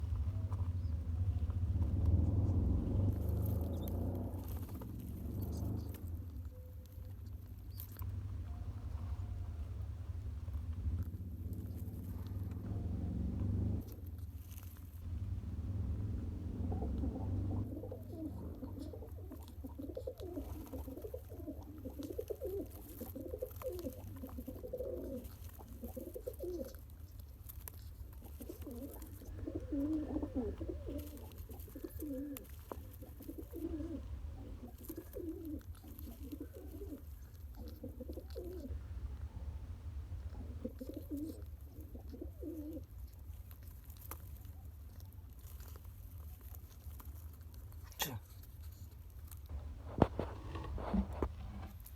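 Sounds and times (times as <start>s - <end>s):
steady low hum: 0.0s - 26.0s, 38.6s - 40.8s, 47.8s - 51.9s
pigeon cooing: 0.0s - 51.9s.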